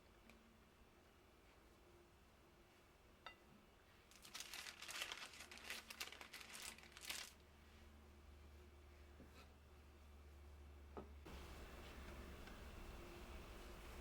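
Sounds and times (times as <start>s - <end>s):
crinkling and rustling: 4.1s - 7.4s.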